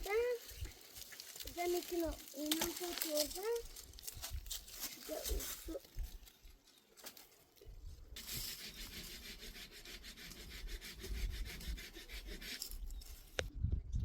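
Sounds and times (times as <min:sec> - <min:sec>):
tool rasping on wood: 0:08.2 - 0:13.1.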